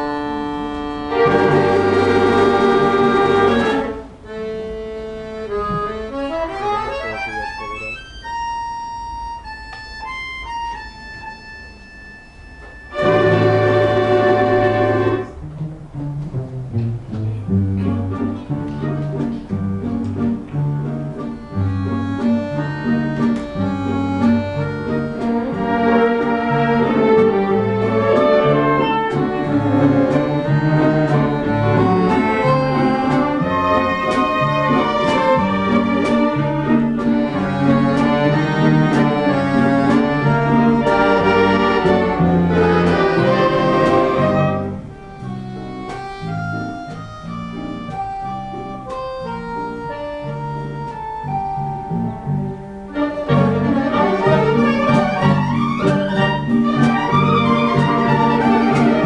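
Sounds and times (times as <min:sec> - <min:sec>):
orchestra playing a waltz: 0:00.0 - 0:59.0.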